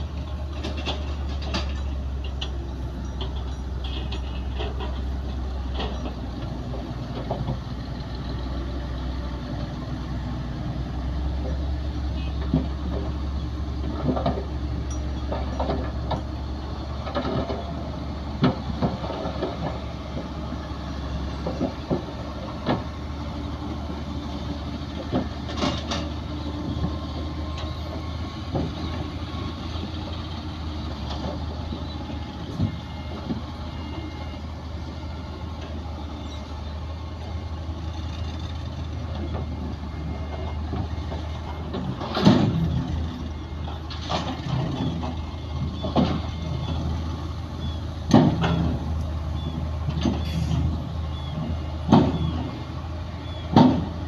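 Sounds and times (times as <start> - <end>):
diesel earth-moving machinery running: 0.0 - 54.0.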